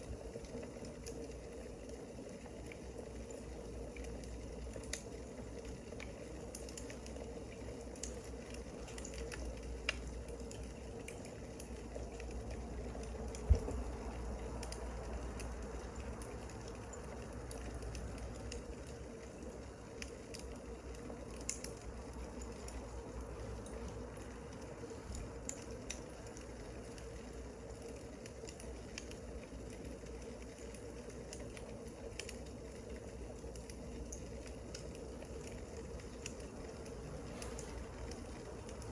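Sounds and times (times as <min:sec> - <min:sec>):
wood fire crackling: 0:00.0 - 0:38.9
thump: 0:13.5 - 0:13.9.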